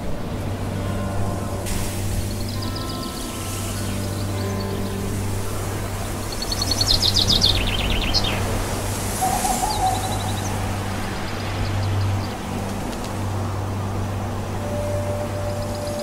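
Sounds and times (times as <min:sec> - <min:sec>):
songbird trilling: 0:09.2 - 0:10.7.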